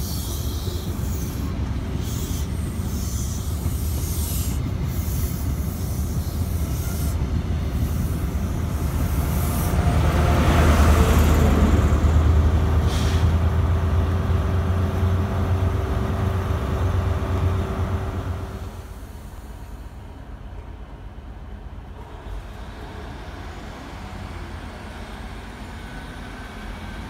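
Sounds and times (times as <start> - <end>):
train coaches rumbling over rails: 0.0 - 27.0
short hiss of air: 12.8 - 13.4.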